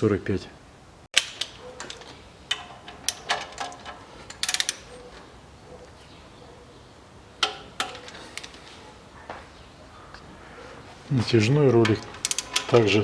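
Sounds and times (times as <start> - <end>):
tools clinking on metal: 1.3 - 5.1, 11.8 - 13.0
ratchet wrench clicking: 4.3 - 4.9, 12.1 - 12.8.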